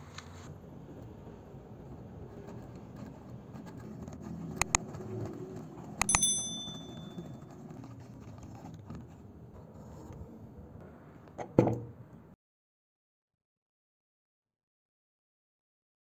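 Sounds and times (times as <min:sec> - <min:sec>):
click: 0:04.6 - 0:04.8, 0:06.0 - 0:07.1
bell-like ding: 0:06.0 - 0:07.4.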